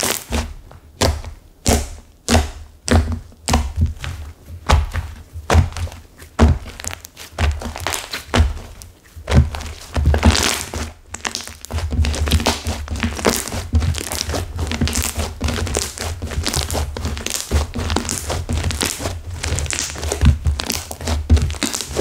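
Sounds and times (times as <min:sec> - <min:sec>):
stiff slime squished by hand: 0:00.0 - 0:22.0.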